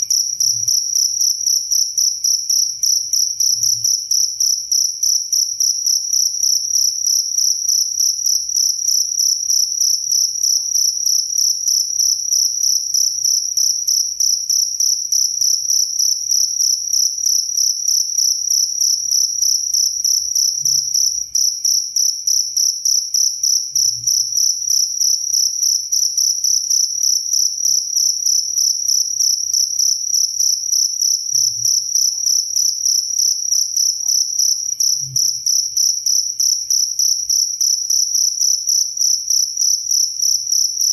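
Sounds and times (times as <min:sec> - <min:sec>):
cricket chirping: 0:00.0 - 0:40.9.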